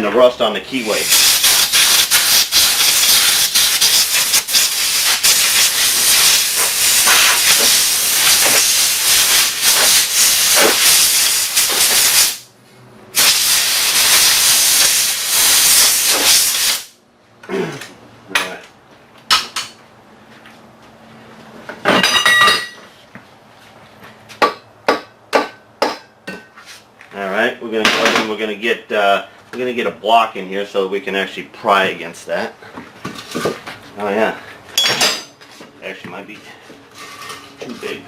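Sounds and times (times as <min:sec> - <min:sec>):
compressed air blow gun hiss: 0:00.8 - 0:12.4, 0:13.2 - 0:17.0.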